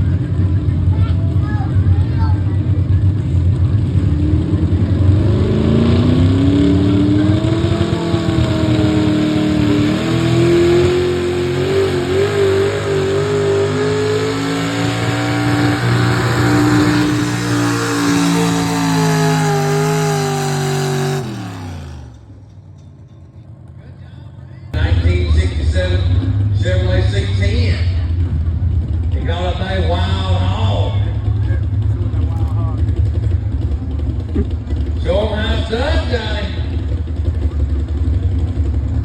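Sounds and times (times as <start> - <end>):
truck engine revving: 0.0 - 22.5.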